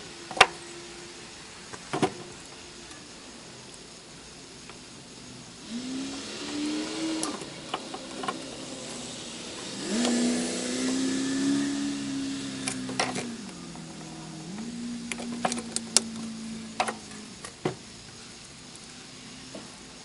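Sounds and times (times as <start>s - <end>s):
small electric motor whining: 4.4s - 20.0s.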